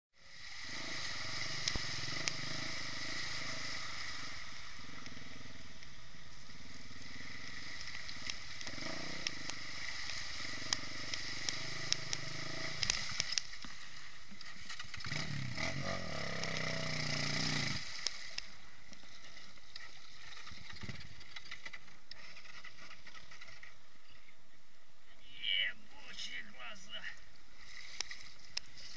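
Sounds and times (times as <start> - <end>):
motorcycle engine revving: 0.2 - 13.6, 14.4 - 18.2.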